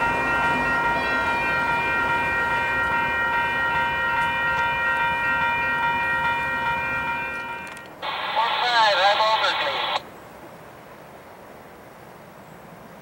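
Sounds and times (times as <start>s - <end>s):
high-pitched ringing tone: 0.0s - 7.9s
train low rumble: 0.0s - 13.0s.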